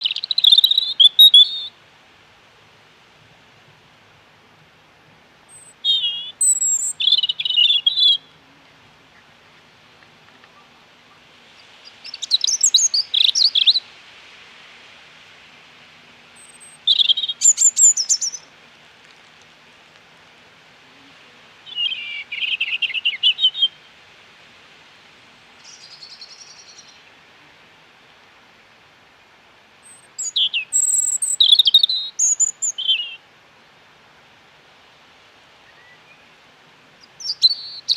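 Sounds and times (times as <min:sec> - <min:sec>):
songbird warbling: 0:00.0 - 0:01.8, 0:05.5 - 0:13.9, 0:16.3 - 0:18.5, 0:20.9 - 0:23.9, 0:25.6 - 0:27.1, 0:29.8 - 0:33.2, 0:37.0 - 0:37.9
faint outdoor hiss: 0:00.0 - 0:37.9.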